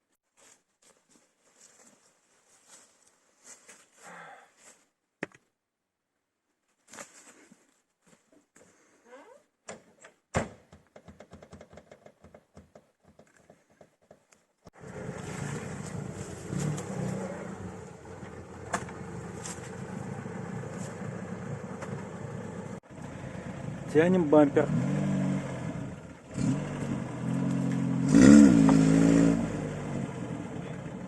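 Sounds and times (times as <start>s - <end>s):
car engine starting and running: 14.7s - 31.0s.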